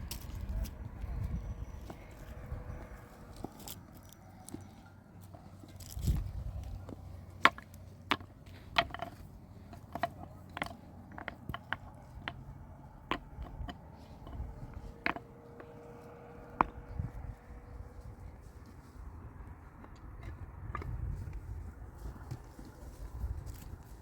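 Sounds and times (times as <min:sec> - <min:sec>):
sharp knocks and taps: 0:06.9 - 0:15.9.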